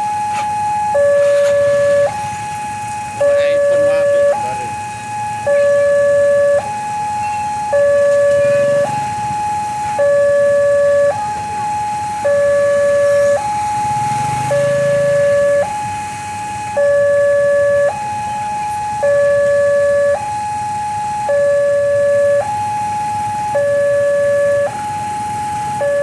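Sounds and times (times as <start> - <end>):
two-tone crossing alarm: 0.0 - 26.0.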